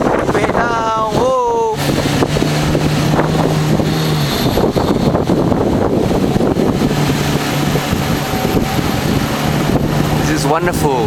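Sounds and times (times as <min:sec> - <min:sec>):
outboard motor running: 0:00.0 - 0:11.0
water rushing past hull: 0:00.0 - 0:11.0
wind buffeting microphone: 0:00.0 - 0:11.0.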